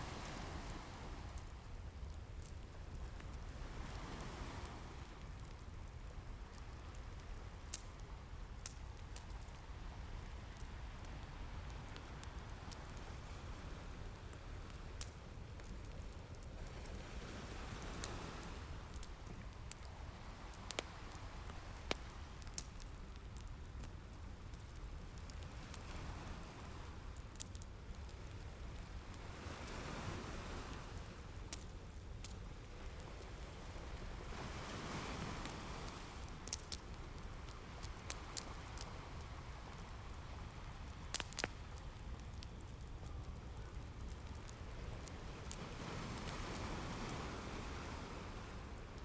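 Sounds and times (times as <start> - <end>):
ocean waves: 0.0 - 1.5, 3.5 - 5.2, 16.6 - 22.4, 28.9 - 31.3, 32.8 - 41.0, 44.6 - 49.0
fireplace crackling and popping: 0.0 - 49.0.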